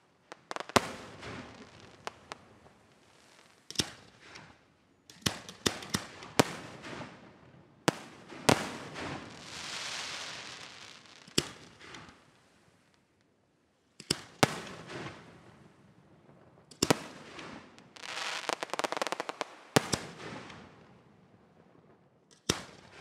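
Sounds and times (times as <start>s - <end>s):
firework crackling hiss: 8.0s - 12.1s, 17.8s - 20.0s.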